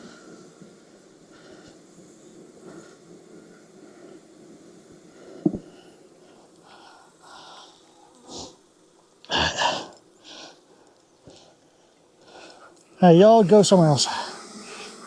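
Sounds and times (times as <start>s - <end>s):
honeybees humming: 0.0s - 15.0s
knock of wooden hive parts: 5.5s - 5.7s.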